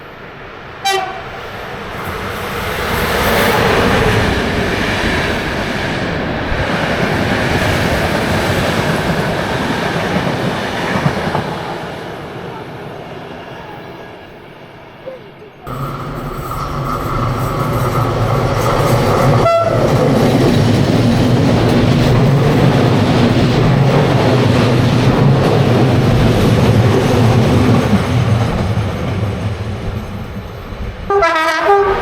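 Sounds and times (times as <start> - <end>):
train rumbling past: 0.0 - 32.0
train horn: 0.8 - 1.4, 19.3 - 20.0, 31.1 - 32.0
wheels clattering on rail joints: 15.7 - 30.2.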